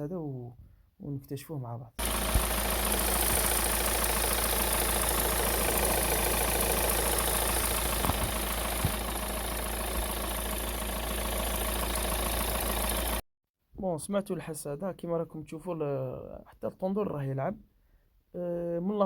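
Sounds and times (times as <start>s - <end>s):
diesel engine idling: 2.0s - 13.2s
drive belt noise: 2.0s - 13.2s.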